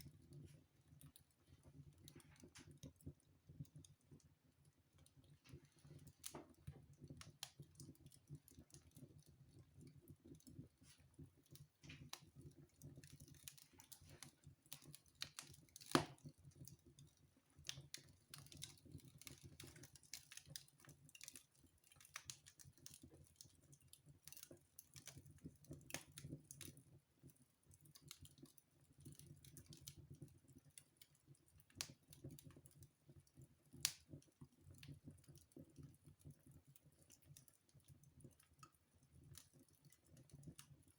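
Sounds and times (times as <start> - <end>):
wood fire crackling: 0.0 - 40.9
fire pops and snaps: 5.4 - 37.5.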